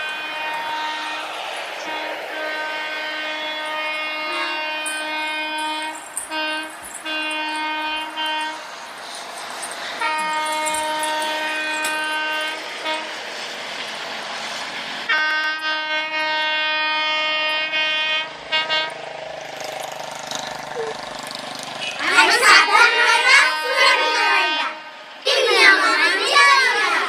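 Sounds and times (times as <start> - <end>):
train horn blasts: 0.0 - 8.9, 10.0 - 13.6, 15.1 - 19.1, 21.8 - 25.5.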